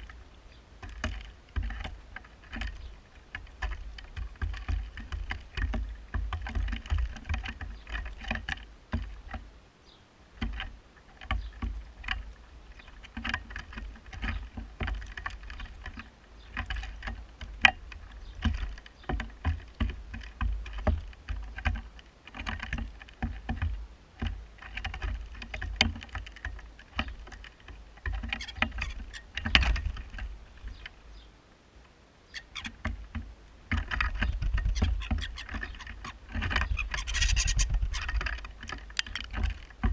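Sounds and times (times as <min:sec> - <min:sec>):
beaks pecking on a table: 0:00.0 - 0:09.5, 0:10.4 - 0:31.3, 0:32.3 - 0:39.9
bird feet scrabbling: 0:00.0 - 0:09.5, 0:10.4 - 0:31.3, 0:32.3 - 0:39.9
wind rumble on microphone: 0:32.8 - 0:39.9.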